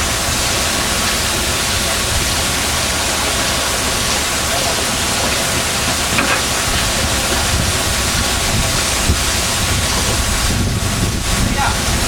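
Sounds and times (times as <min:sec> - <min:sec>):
boat engine running: 0:00.0 - 0:12.0
rushing wind: 0:00.0 - 0:12.0
water rushing: 0:00.0 - 0:12.0.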